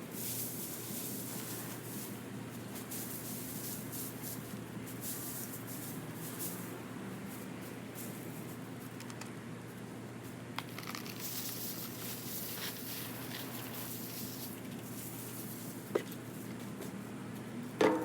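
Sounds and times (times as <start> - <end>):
dry leaves rustling: 0.0 - 9.0, 9.6 - 16.8
bag crinkling: 10.6 - 14.4.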